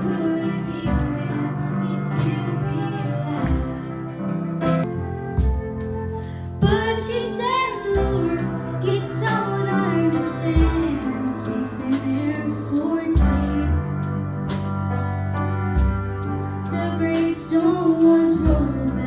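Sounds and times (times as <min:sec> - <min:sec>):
woman singing: 0:00.0 - 0:04.2, 0:06.6 - 0:14.2, 0:16.6 - 0:19.0
instrumental backing music: 0:00.0 - 0:19.0.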